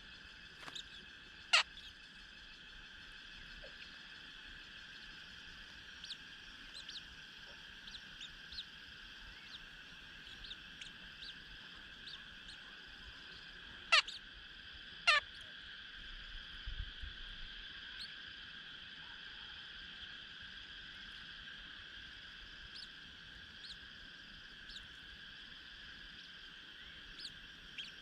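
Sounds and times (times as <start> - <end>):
birds chirping: 0.0 - 15.5, 22.0 - 28.0
steady high-pitched drone: 0.0 - 18.5, 19.8 - 28.0
loud falling bird calls: 0.6 - 1.9.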